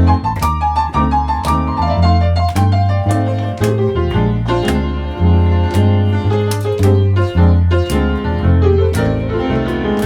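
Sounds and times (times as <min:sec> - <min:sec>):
blues piano: 0:00.0 - 0:10.0
steady bass line: 0:00.0 - 0:10.0.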